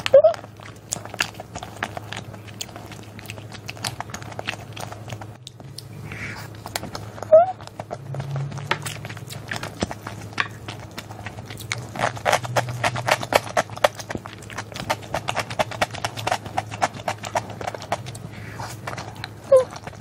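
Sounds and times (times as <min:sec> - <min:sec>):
wet chewing mouth clicks: 0:00.0 - 0:20.0.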